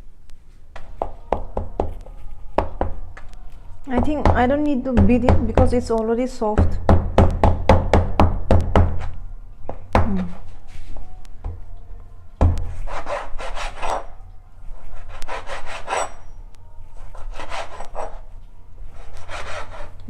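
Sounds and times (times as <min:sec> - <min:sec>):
knife sawing through meat: 0:18.9 - 0:20.0.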